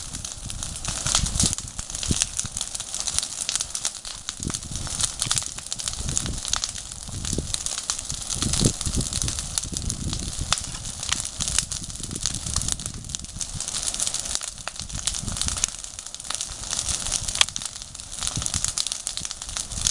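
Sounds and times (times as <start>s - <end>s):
campfire crackling and popping: 0.0s - 19.9s.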